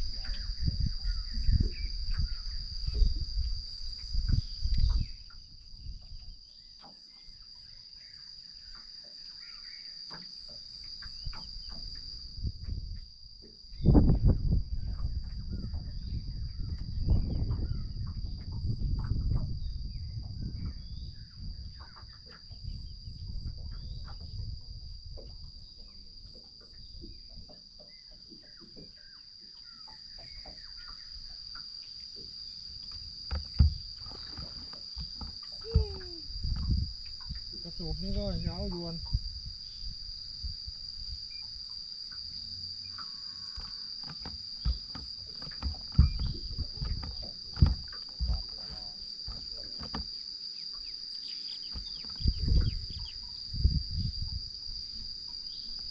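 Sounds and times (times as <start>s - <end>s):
crickets chirping: 0.0s - 55.9s
sharp knocks: 33.3s - 36.7s, 43.5s - 50.1s.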